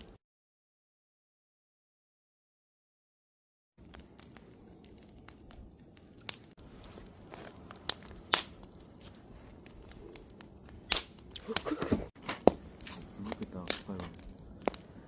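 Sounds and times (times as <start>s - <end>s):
campfire crackling: 3.8s - 15.0s.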